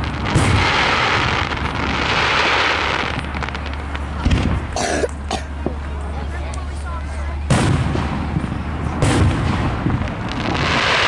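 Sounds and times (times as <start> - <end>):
fireworks hiss: 0.0 - 4.7
low boom: 0.0 - 4.8, 7.4 - 11.0
fireworks pops: 0.0 - 5.8.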